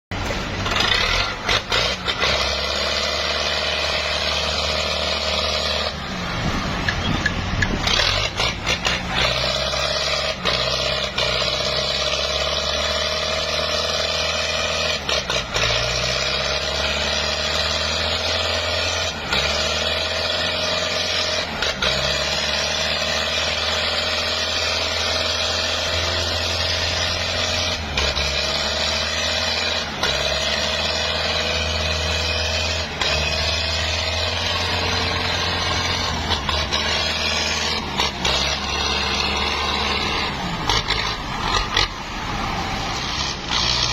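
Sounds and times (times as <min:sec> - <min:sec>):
tractor engine labouring: 0:00.0 - 0:43.9.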